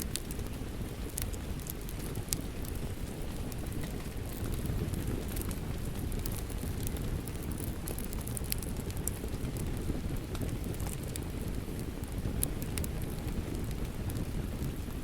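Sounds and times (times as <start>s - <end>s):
light ticks and patter: 0.0s - 15.0s.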